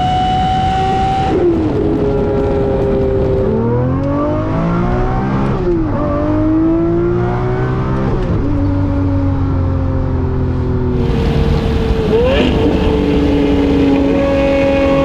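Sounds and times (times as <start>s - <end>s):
car engine accelerating: 10.9s - 15.0s.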